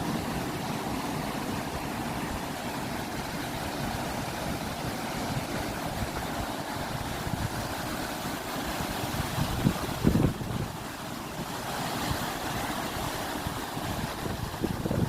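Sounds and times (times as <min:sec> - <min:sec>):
ocean surf roaring: 0:00.0 - 0:15.0
wind buffeting microphone: 0:03.8 - 0:15.0.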